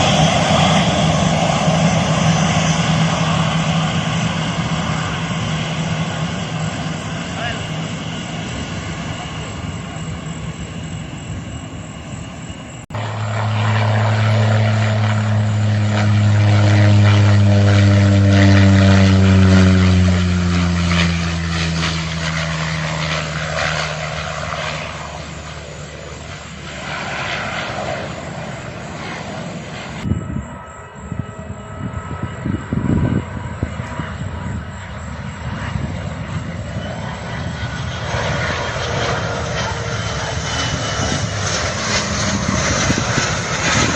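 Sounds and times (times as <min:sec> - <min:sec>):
airliner engines running: 0:00.0 - 0:43.9.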